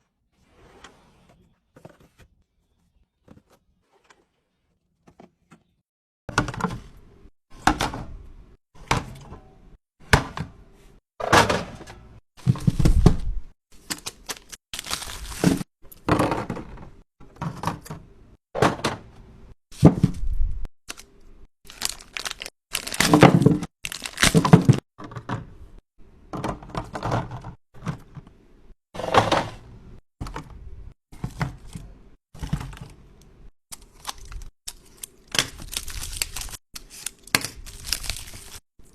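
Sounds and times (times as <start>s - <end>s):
containers clattering on shelves: 11.2s - 12.8s, 29.0s - 29.7s
wrappers rustling: 21.7s - 24.5s, 37.6s - 38.6s.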